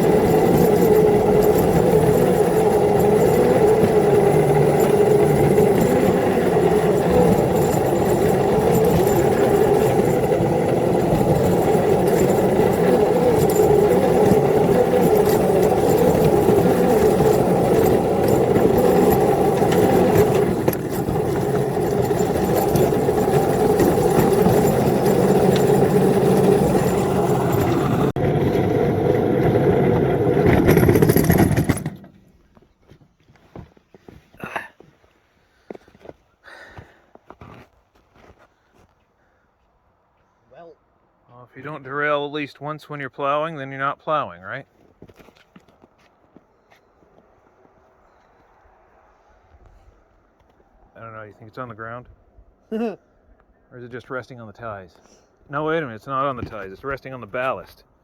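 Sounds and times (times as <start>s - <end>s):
miniature locomotive motor humming: 0.0s - 32.2s.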